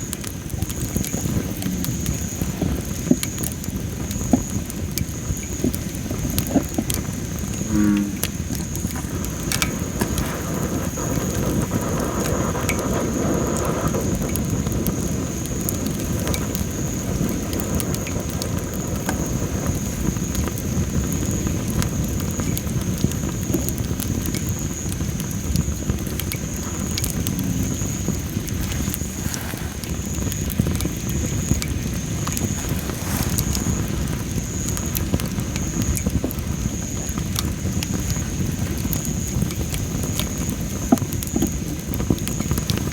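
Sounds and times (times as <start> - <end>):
firewood crackling and popping: 0.0 - 42.9
low rush of flames: 0.0 - 42.9.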